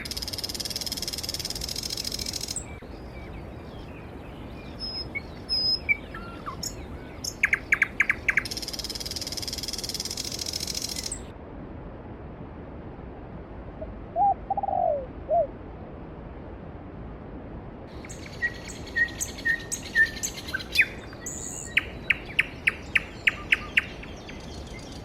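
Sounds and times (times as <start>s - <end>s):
small birds chirping faintly: 0.0s - 11.3s, 17.9s - 25.0s
songbird buzzing trill: 0.0s - 11.3s, 18.0s - 25.0s.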